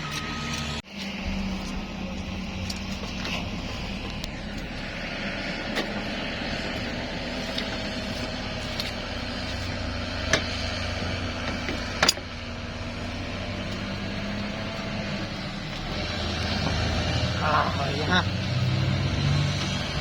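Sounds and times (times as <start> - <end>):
vehicle engine running: 0.0 - 20.0
sharp clicks and knocks: 10.2 - 12.3.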